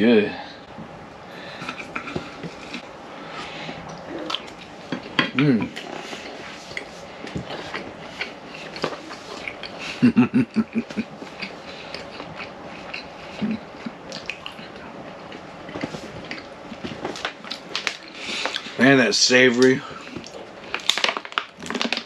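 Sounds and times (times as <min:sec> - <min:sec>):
person chewing: 0:01.6 - 0:18.8.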